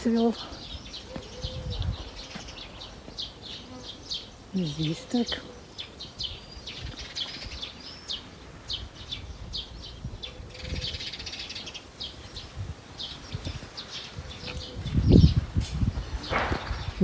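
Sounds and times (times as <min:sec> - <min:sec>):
small birds chirping: 0:00.0 - 0:17.0
wind rumble on microphone: 0:00.6 - 0:02.9, 0:06.2 - 0:07.8, 0:08.6 - 0:17.0.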